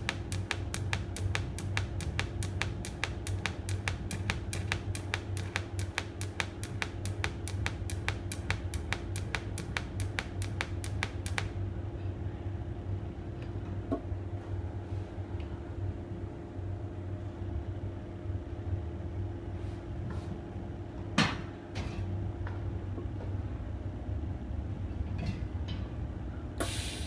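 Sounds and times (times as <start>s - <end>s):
welder pulsing ticks: 0.0s - 11.6s
welding machine low hum: 0.0s - 12.0s, 26.6s - 27.0s.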